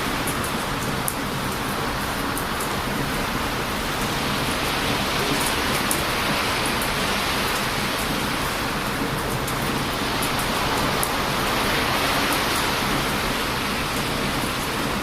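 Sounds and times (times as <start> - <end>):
surf waves roaring: 0.0 - 15.0.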